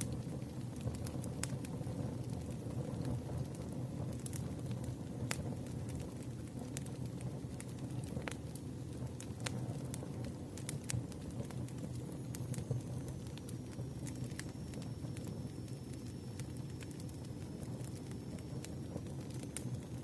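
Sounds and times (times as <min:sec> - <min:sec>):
campfire crackling: 0:00.0 - 0:20.0
fire pops and snaps: 0:00.0 - 0:20.0
faint high hiss-like tone: 0:11.3 - 0:20.0.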